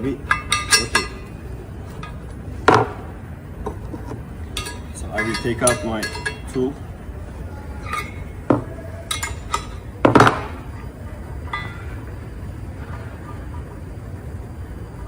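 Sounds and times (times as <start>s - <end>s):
metal tool clinking on brake caliper: 0.0s - 2.3s, 3.6s - 6.8s, 7.7s - 9.9s.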